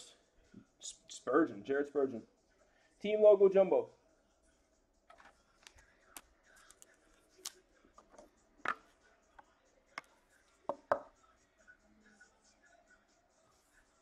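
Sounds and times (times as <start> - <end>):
cards sliding and rustling: 5.1 - 8.8
cards clicking and tapping: 5.1 - 8.9.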